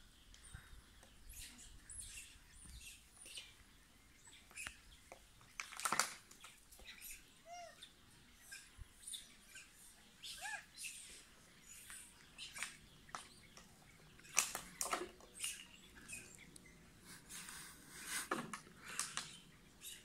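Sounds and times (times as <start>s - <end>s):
birds chirping and calling: 0.1s - 20.0s.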